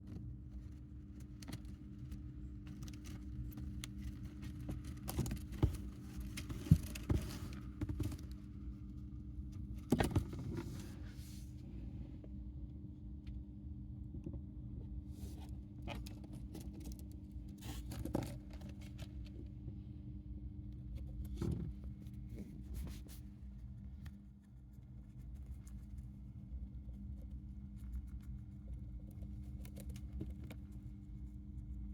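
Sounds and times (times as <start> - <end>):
hamster nibbling carrot: 20.8 - 31.9.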